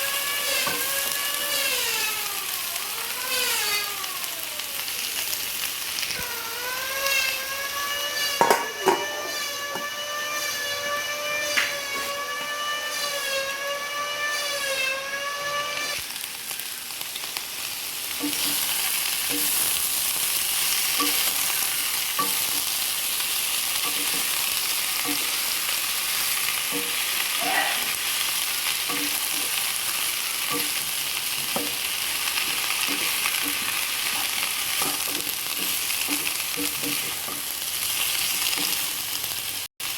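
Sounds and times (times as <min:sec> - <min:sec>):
tofu and cabbage sizzling in a pan: 0:00.0 - 0:39.9
spatula tapping and scraping a pan: 0:08.2 - 0:09.9, 0:19.3 - 0:19.6, 0:21.0 - 0:22.7, 0:23.8 - 0:24.4, 0:25.0 - 0:25.4, 0:26.7 - 0:27.0, 0:28.9 - 0:29.6, 0:30.5 - 0:31.9, 0:32.6 - 0:37.5.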